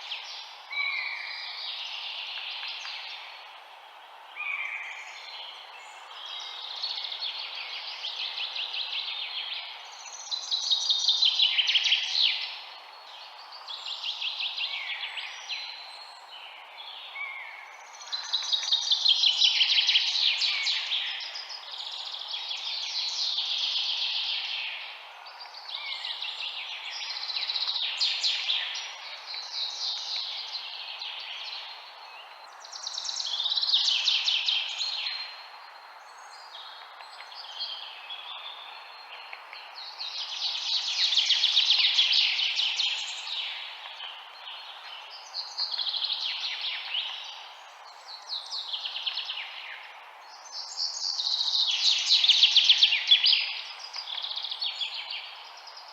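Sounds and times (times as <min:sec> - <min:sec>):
faint background hiss: 0:00.0 - 0:55.9.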